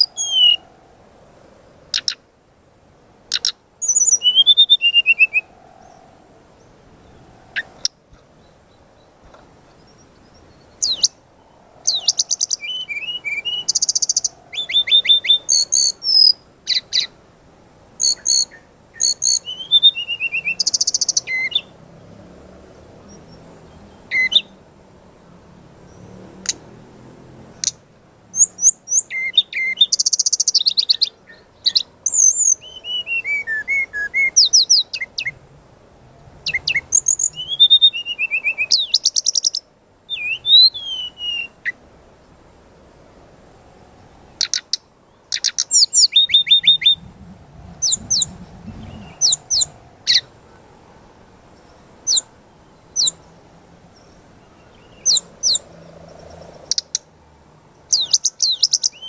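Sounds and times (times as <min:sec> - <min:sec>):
bird singing rapid trills: 0:00.0 - 0:00.8, 0:01.7 - 0:02.2, 0:03.3 - 0:17.2, 0:18.0 - 0:21.8, 0:22.7 - 0:24.6, 0:27.5 - 0:35.4, 0:36.4 - 0:41.8, 0:44.3 - 0:50.3, 0:51.5 - 0:57.1, 0:57.7 - 0:59.0.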